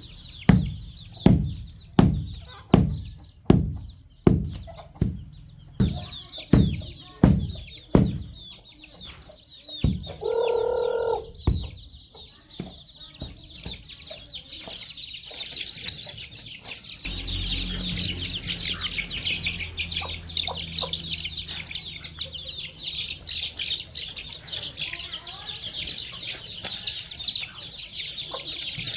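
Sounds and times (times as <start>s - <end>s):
baby chicks peeping: 0.0s - 28.9s
sharp knocks: 0.5s - 8.3s
adult chicken call: 10.2s - 11.3s.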